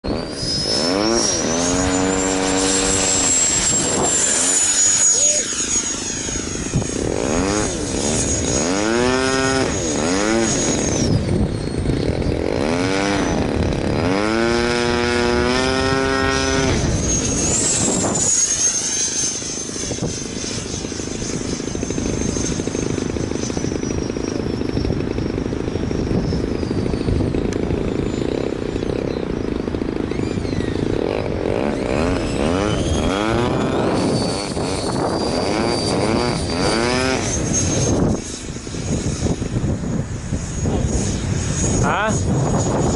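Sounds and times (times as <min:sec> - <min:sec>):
electric ducted fan whining: 0:00.0 - 0:42.9
lower fan tone swooping: 0:00.0 - 0:42.9
strong wind rushing: 0:00.1 - 0:18.8, 0:29.8 - 0:42.9.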